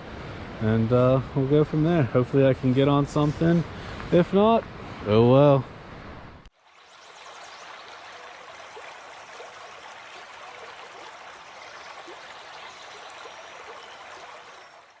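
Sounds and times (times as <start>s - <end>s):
stream water rushing: 6.6s - 15.0s.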